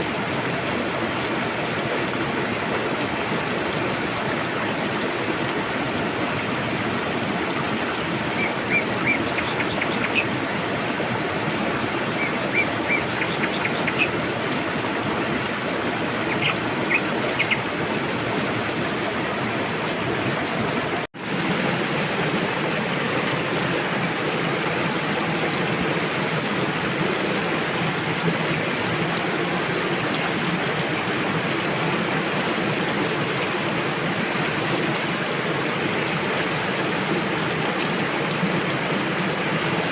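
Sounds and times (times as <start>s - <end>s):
river rushing: 0.0s - 39.9s
bird chirping: 8.4s - 10.3s, 12.0s - 14.2s, 16.2s - 17.6s.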